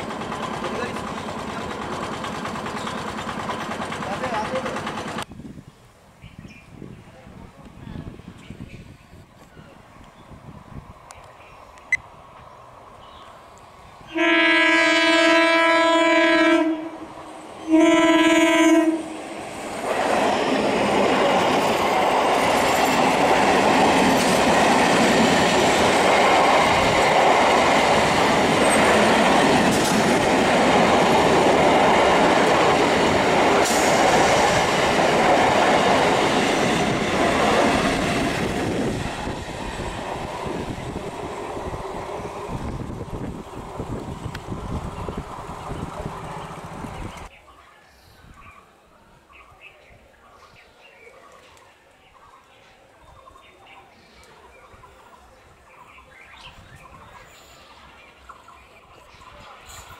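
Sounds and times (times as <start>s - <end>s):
train wheels rushing on rails: 0.0s - 5.3s, 12.3s - 47.3s
train horn blasts: 14.1s - 19.2s.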